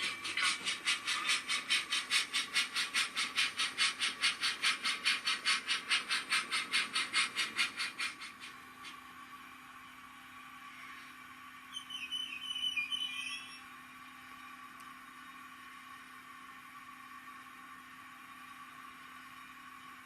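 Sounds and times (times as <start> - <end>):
model train steam chuffs: 0.0 - 13.7.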